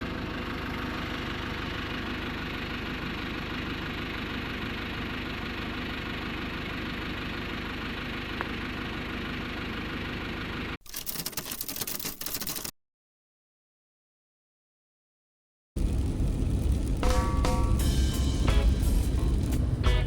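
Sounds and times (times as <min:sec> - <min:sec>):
engine rumble: 0:00.0 - 0:10.8, 0:15.8 - 0:20.0.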